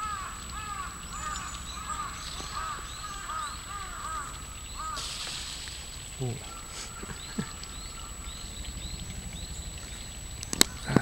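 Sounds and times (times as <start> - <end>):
brief hiss: 4.9 - 7.5.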